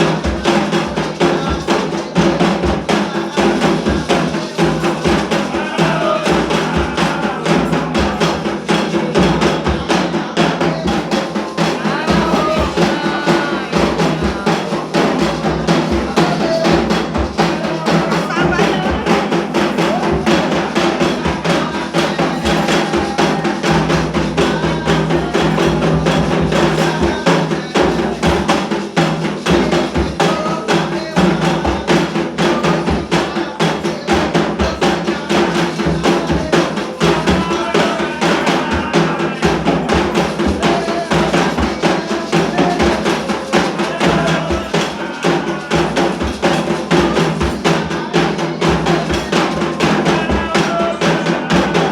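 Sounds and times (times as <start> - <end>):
bell-like percussion: 0.0 - 51.9
hand drums playing fast rhythm: 0.0 - 51.9
voices faintly singing: 0.0 - 51.9.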